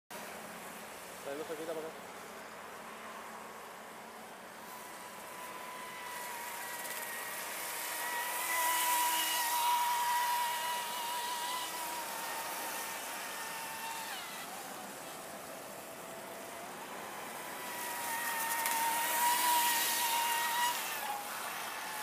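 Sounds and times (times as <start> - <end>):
hull cutting water: 2.1 - 22.0
electric motor whining: 4.5 - 22.0.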